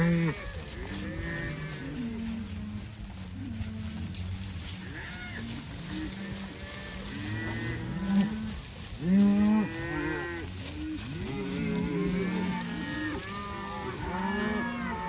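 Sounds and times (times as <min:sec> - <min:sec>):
cows bawling: 0:00.0 - 0:15.0.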